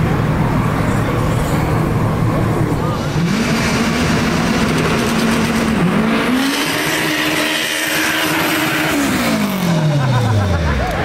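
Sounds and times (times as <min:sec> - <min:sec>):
car engine revving hard: 0:02.9 - 0:10.7.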